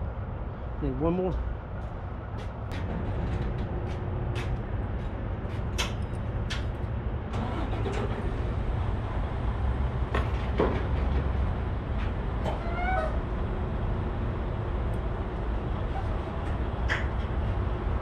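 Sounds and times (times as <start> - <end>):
diesel engine idling: 7.2 - 15.9.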